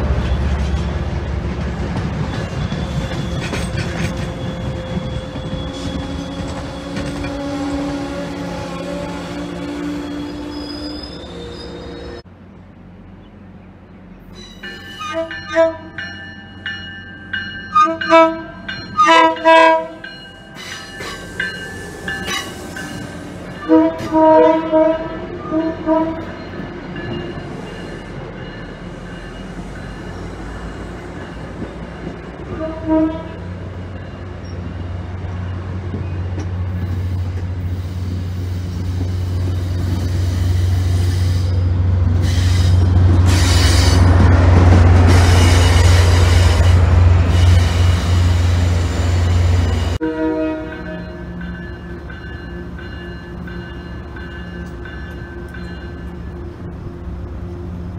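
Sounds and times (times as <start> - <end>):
train approaching on rails: 0.0 - 57.9
locomotive air horn blasts: 4.1 - 11.8, 14.9 - 16.0, 17.7 - 20.0, 22.0 - 26.3, 32.5 - 33.4, 45.1 - 51.3.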